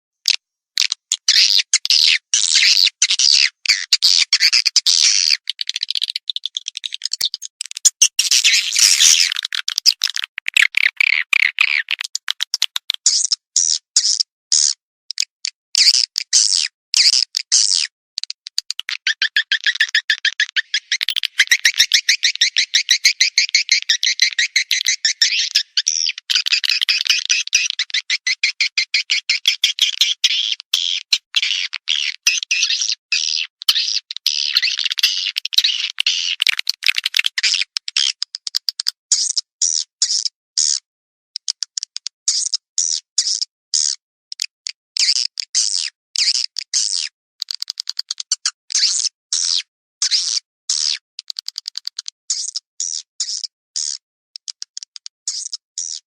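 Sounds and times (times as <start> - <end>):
swiftlet chattering twitter: 19.2 - 28.6.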